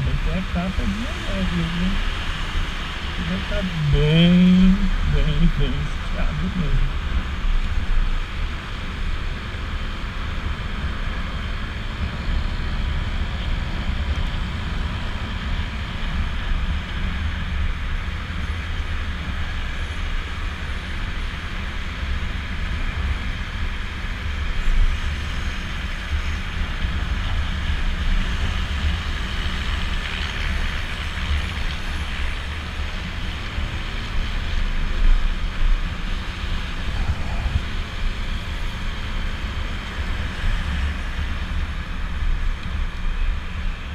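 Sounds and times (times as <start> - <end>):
road noise: 0.0 - 43.9
wind buffeting microphone: 36.5 - 39.0.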